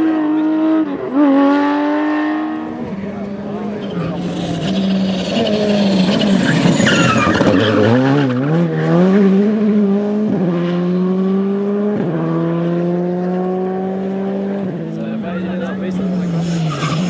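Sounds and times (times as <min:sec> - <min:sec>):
tyres squealing: 0:02.5 - 0:07.8
rally car engine revving: 0:02.5 - 0:08.2.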